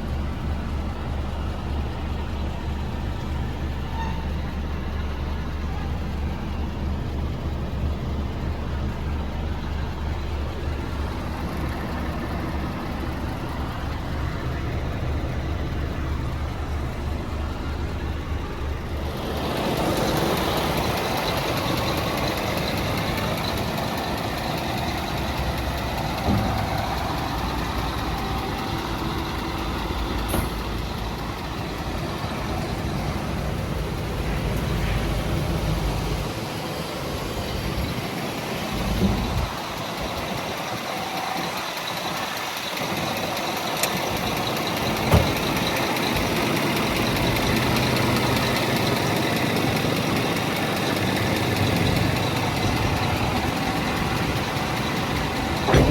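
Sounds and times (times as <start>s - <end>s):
diesel truck engine idling: 0.0s - 55.9s.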